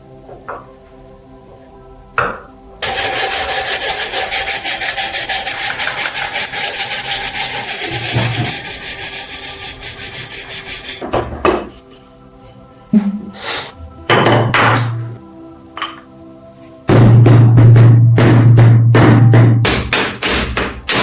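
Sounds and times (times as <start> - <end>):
abrasive scraping on rusted metal: 2.8 - 11.0.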